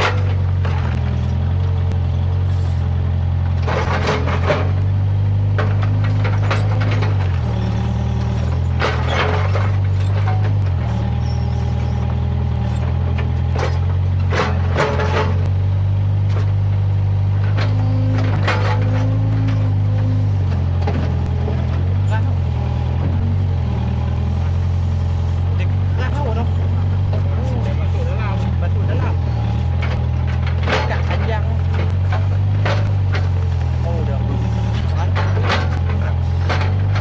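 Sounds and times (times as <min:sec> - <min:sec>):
diesel engine under load: 0:00.0 - 0:37.0.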